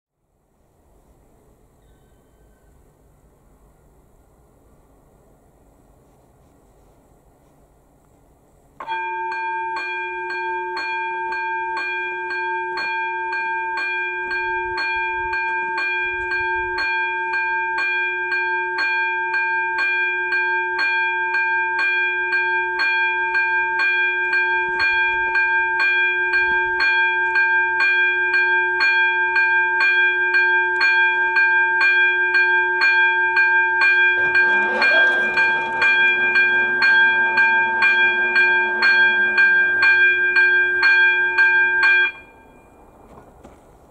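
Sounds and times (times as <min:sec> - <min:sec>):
approaching train: 0:00.3 - 0:43.9
level crossing warning bell ringing: 0:08.8 - 0:43.2.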